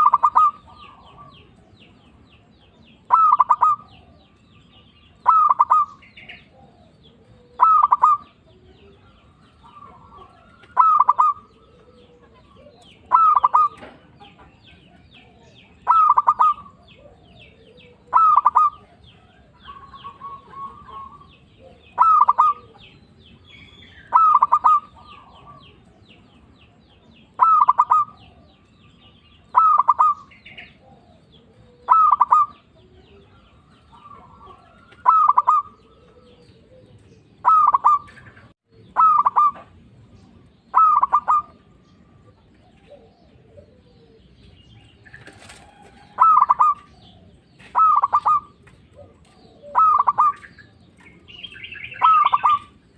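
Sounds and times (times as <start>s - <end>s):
dove cooing: 0.0s - 26.4s, 27.0s - 52.9s.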